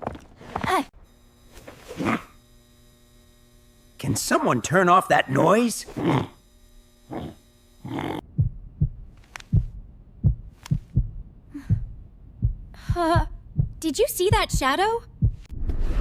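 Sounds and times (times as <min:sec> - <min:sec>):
electrical hum: 0:00.0 - 0:15.5
low dull thuds: 0:08.2 - 0:15.8.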